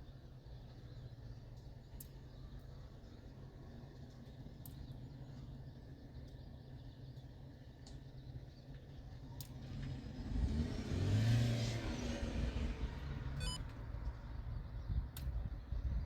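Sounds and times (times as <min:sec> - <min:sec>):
vehicle passing by: 0:09.6 - 0:13.6.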